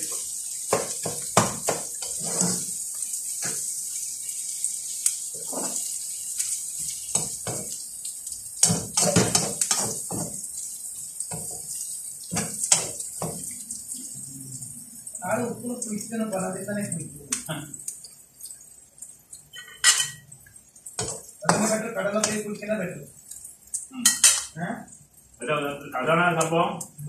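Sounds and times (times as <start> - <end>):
chicken and onions sizzling: 0.0 - 18.2, 18.8 - 25.1
metal spatula scraping a pan: 1.4 - 2.8, 5.4 - 5.9.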